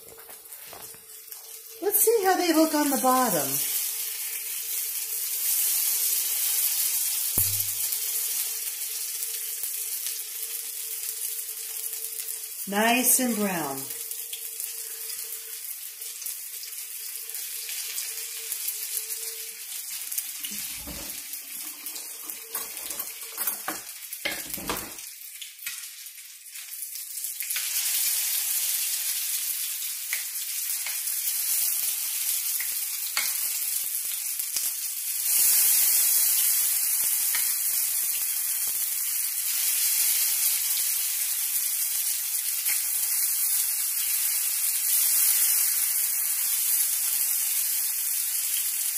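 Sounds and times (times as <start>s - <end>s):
pancakes sizzling in oil: 0.0s - 48.9s.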